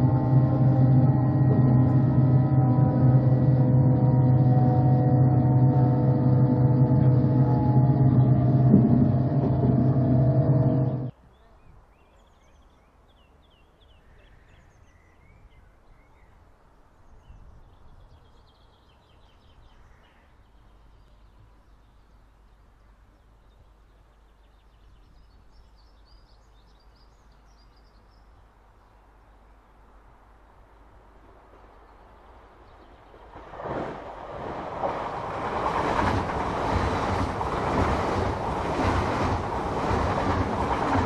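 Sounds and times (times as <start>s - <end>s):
train hum inside carriage: 0.0s - 11.2s, 32.8s - 41.0s.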